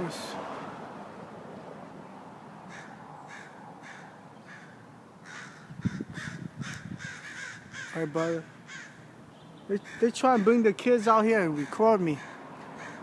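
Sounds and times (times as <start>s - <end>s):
crows cawing: 2.7s - 10.7s, 11.4s - 13.0s.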